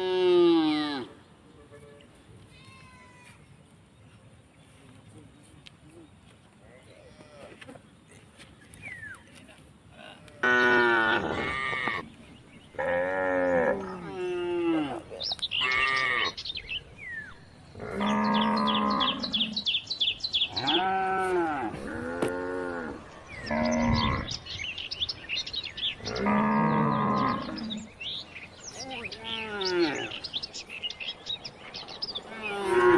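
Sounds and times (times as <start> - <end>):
birds chirping: 0.0 - 32.9
cattle mooing: 10.4 - 12.0, 12.8 - 16.4, 17.8 - 19.6, 20.5 - 24.3, 26.0 - 27.9, 29.0 - 30.2, 32.3 - 32.9.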